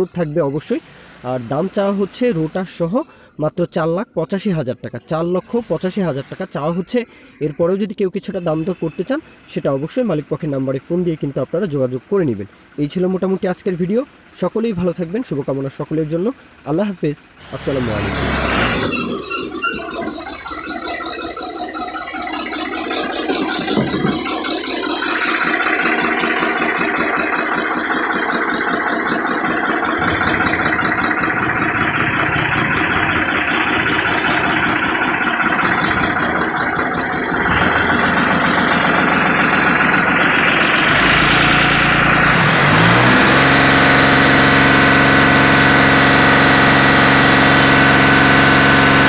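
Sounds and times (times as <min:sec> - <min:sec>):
tractor diesel engine rattling: 0:00.0 - 0:49.0.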